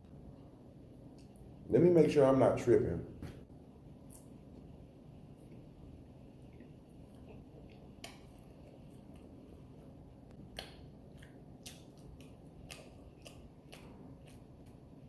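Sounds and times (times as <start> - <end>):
low steady hum: 0.0 - 15.0
mouth smacks while chewing: 1.1 - 1.5, 4.0 - 4.4, 6.4 - 15.0.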